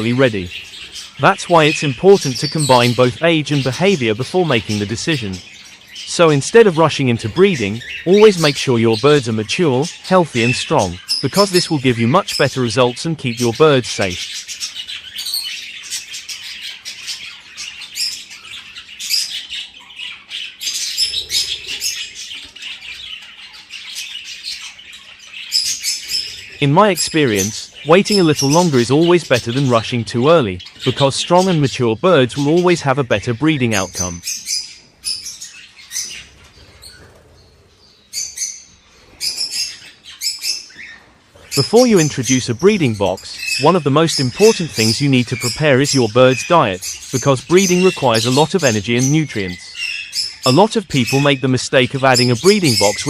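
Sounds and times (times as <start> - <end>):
budgerigars chirping and chattering: 0.0 - 53.0.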